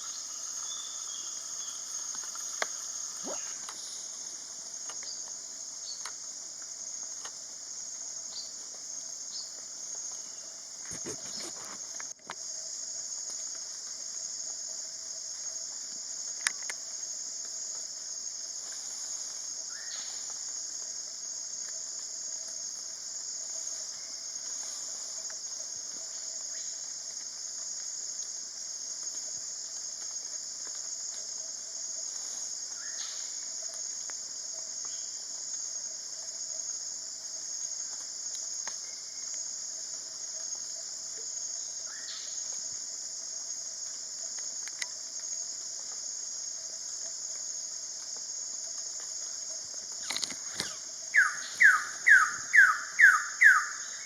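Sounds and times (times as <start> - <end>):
insect chorus: 0.0 - 54.0
faint falling bird calls: 50.0 - 53.7.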